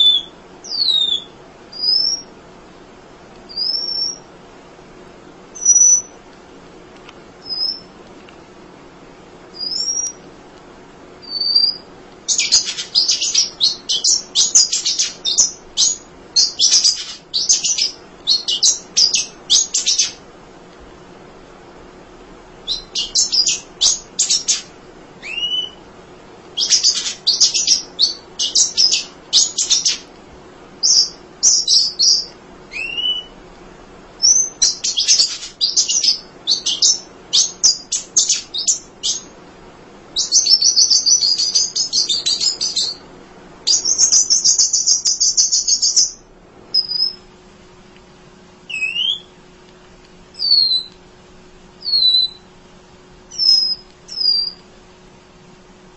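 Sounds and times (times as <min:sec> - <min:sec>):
bird chattering trills: 0:00.0 - 0:02.3, 0:03.5 - 0:04.2, 0:11.2 - 0:20.2, 0:22.7 - 0:25.8, 0:26.6 - 0:30.1, 0:30.8 - 0:33.3, 0:34.2 - 0:39.3, 0:40.2 - 0:43.0, 0:43.7 - 0:46.2, 0:48.7 - 0:49.3, 0:50.4 - 0:50.9, 0:51.8 - 0:52.4.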